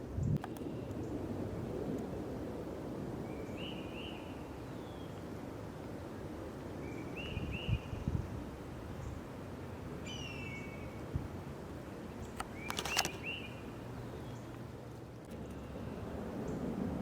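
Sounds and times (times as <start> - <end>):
bird chirping: 10.1 - 10.9, 12.2 - 14.5.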